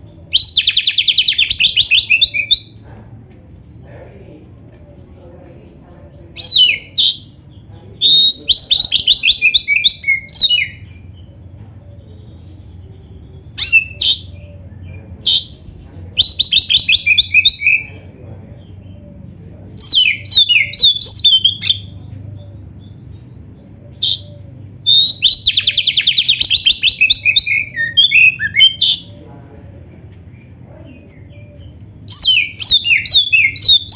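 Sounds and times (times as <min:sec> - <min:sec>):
bird singing whistled phrases: 0:19.8 - 0:22.0, 0:23.9 - 0:29.1, 0:31.2 - 0:33.9.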